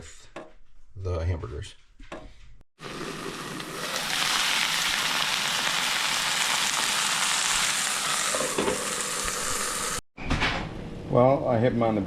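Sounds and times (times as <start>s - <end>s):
vegetables sizzling in oil: 2.8s - 10.0s.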